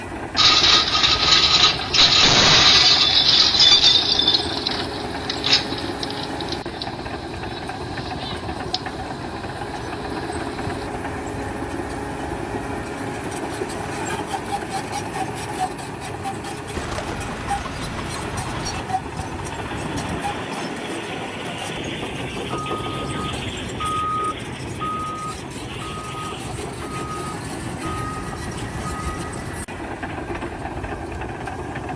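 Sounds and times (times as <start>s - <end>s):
construction machinery engine: 0.0s - 31.9s.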